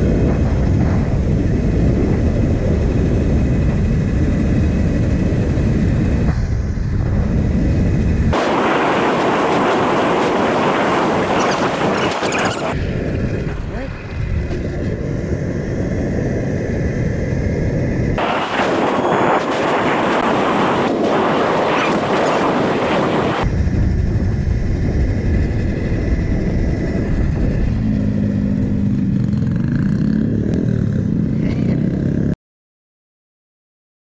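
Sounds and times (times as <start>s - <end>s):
wind rushing over microphone: 0.0s - 32.4s
harsh hiss: 8.4s - 12.8s, 18.2s - 23.4s
dirt bikes riding: 8.4s - 17.0s, 18.2s - 23.5s, 26.1s - 32.4s.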